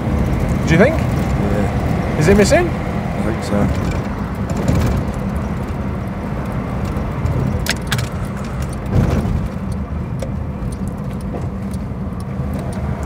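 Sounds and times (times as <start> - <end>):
car engine and road noise: 0.0 - 13.0
light jingling clicks: 5.0 - 13.0.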